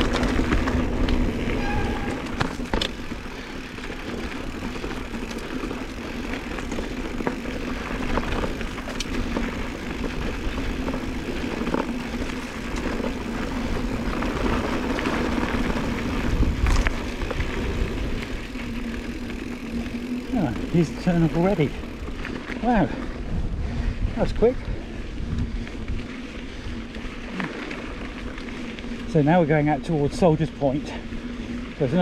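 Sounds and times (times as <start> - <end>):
bike knocks and rattles: 0.0 - 22.0
wind buffeting microphone: 0.0 - 27.1
bike tyre rumble: 0.0 - 32.0.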